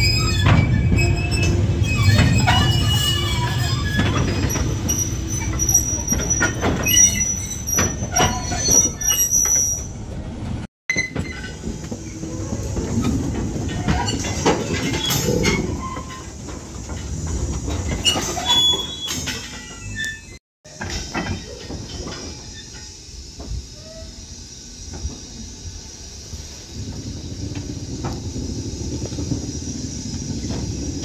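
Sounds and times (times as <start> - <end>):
high wheel squeal: 0.0 - 10.0, 17.9 - 20.4
train wheel and rail rumble: 0.0 - 31.0
knocks and clanks: 0.4 - 20.0.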